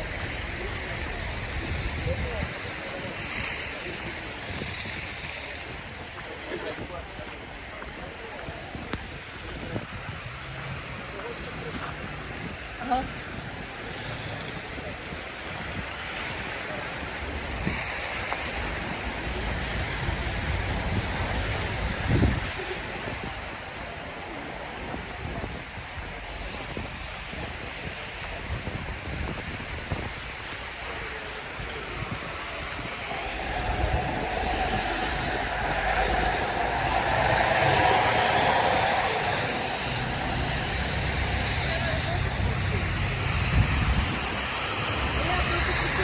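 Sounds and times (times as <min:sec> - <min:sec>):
city traffic: 0:00.0 - 0:46.0
wind rushing: 0:24.9 - 0:46.0
low rumble: 0:29.6 - 0:46.0
vehicle passing: 0:31.4 - 0:46.0.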